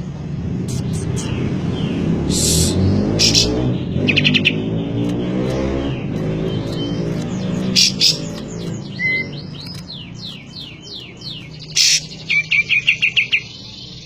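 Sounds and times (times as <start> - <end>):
songbird trill: 0.7 - 14.0
sharp click: 5.0 - 5.6, 9.6 - 10.5
songbird whistled notes: 6.7 - 13.5.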